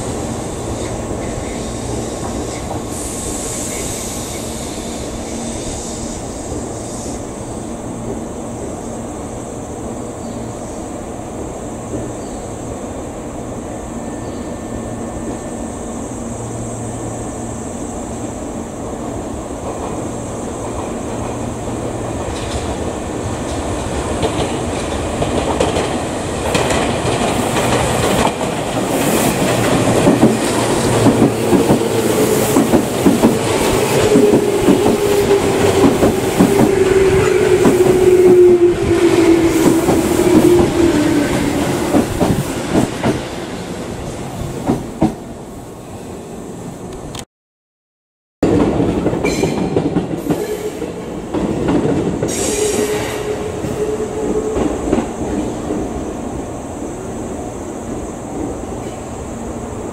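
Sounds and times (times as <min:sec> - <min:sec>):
train wheels clattering: 0:23.4 - 0:43.3.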